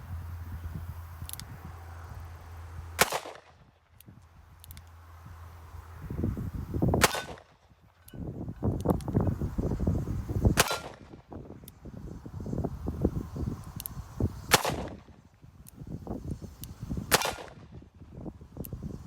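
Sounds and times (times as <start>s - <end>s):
wind buffeting microphone: 0.0s - 4.6s, 5.2s - 19.0s
revolver shots: 7.0s - 7.5s.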